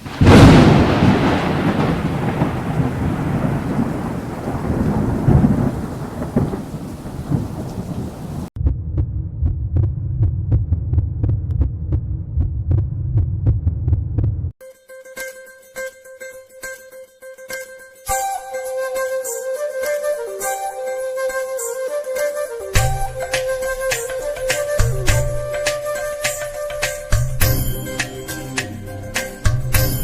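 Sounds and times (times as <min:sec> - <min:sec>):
steady rain: 0:00.0 - 0:08.5
thunder rumbling: 0:00.0 - 0:08.5
low throbbing hum: 0:08.6 - 0:14.5.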